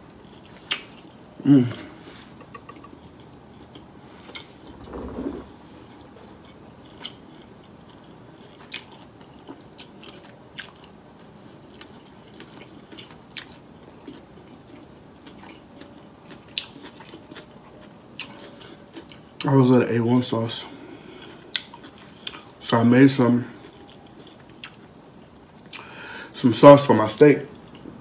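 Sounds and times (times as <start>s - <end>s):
person chewing food: 1.8s - 19.4s, 21.1s - 22.6s, 23.6s - 26.0s.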